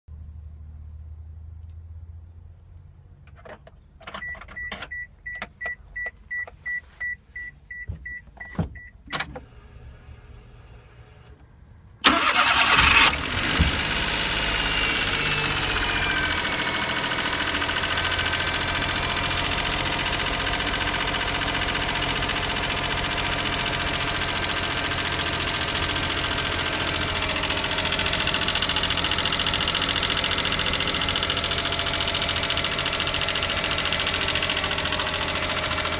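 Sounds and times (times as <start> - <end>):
engine starting and idling: 12.0 - 35.9.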